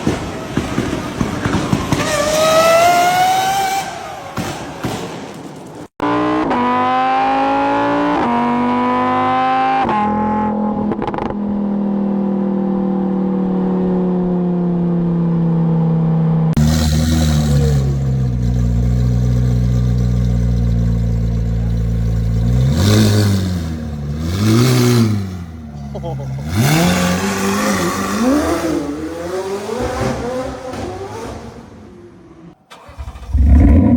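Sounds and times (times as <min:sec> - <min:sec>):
car engine accelerating through gears: 0:06.0 - 0:33.9
deeper engine revving: 0:06.0 - 0:33.9.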